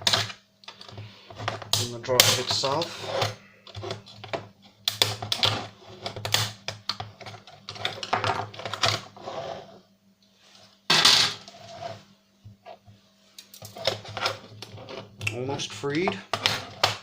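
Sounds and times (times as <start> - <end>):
plastic scraping: 13.6 - 15.3.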